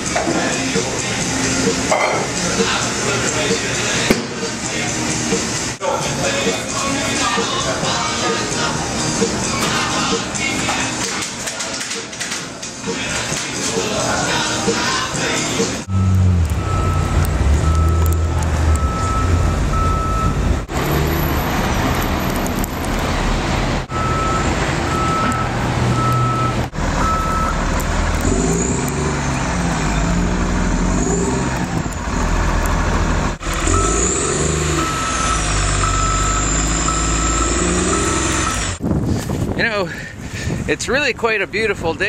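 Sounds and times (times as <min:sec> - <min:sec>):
heavy vehicle engine running: 0:15.3 - 0:39.3
backup alarm beeping: 0:15.9 - 0:20.7, 0:23.9 - 0:27.7, 0:33.5 - 0:38.8.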